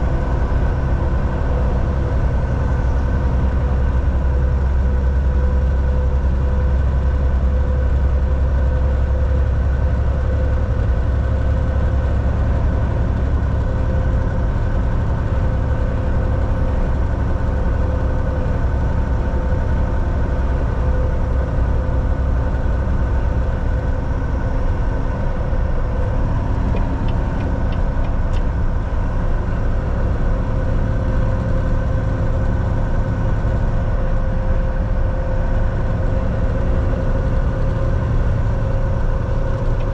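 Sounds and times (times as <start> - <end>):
road noise: 0.0 - 39.9
truck engine drone: 0.0 - 39.9.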